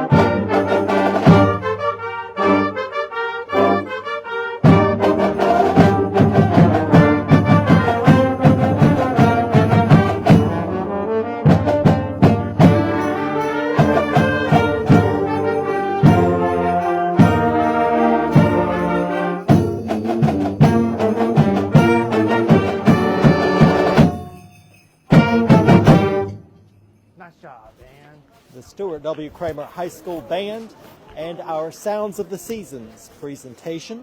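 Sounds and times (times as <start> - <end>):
band playing brass and drums: 0.0 - 26.6.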